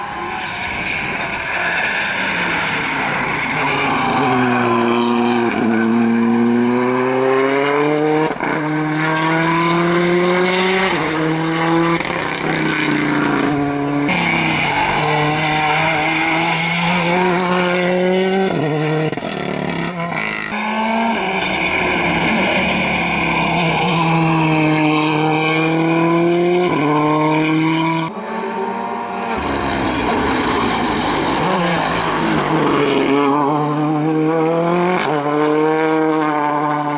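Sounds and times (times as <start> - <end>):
tyre squeal: 0.0 - 6.2, 9.4 - 18.1, 20.4 - 25.2, 28.1 - 33.9
rally car engines revving hard: 0.0 - 36.9.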